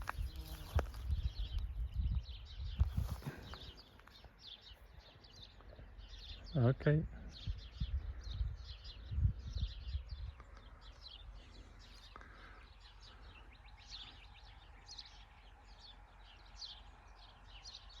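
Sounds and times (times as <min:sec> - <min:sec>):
faint outdoor hiss: 0:00.0 - 0:01.0
wind thumps on microphone: 0:00.0 - 0:03.8, 0:07.2 - 0:10.5
small birds chirping: 0:00.0 - 0:18.0.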